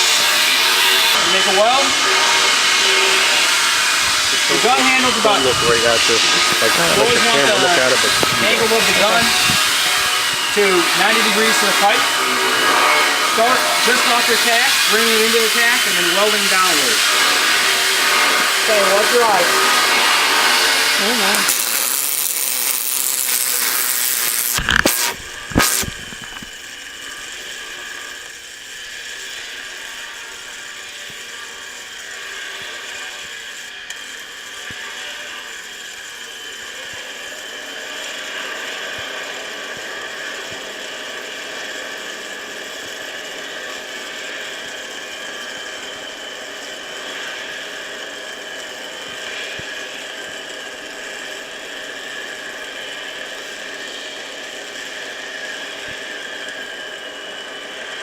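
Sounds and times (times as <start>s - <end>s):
welding arc crackling: 0.0s - 36.7s.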